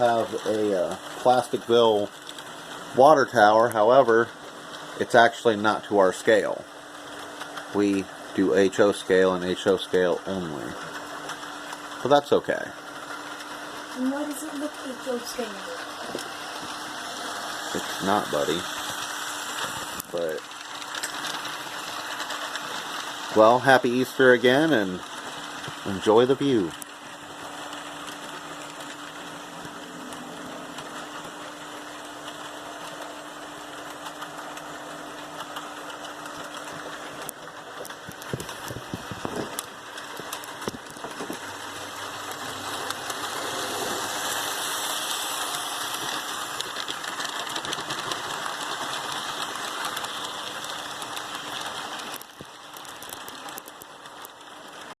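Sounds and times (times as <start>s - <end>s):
wheels rolling on rail: 0.0s - 55.0s
electric motor hum: 10.1s - 54.8s.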